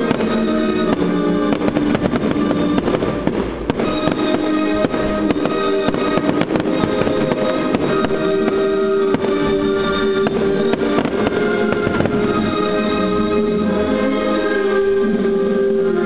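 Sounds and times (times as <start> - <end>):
fireworks cracking and popping: 0.0 - 12.9
music with long held notes: 0.0 - 16.0.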